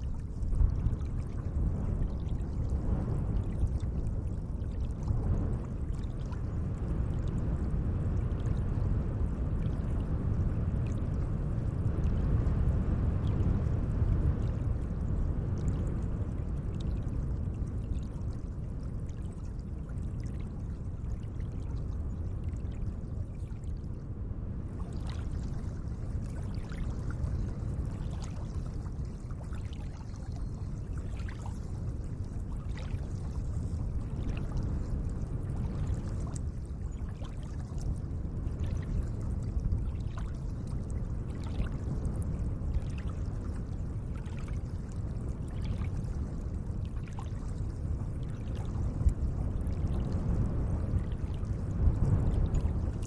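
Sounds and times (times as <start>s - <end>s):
small water splashes and drips: 0.0s - 10.1s, 14.2s - 24.0s, 24.7s - 53.0s
lake water washing: 24.9s - 38.0s.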